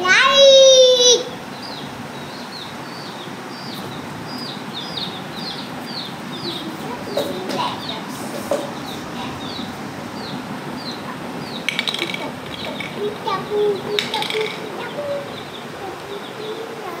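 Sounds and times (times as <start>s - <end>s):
steady background hiss: 0.0s - 17.0s
small bird chirping: 1.2s - 17.0s.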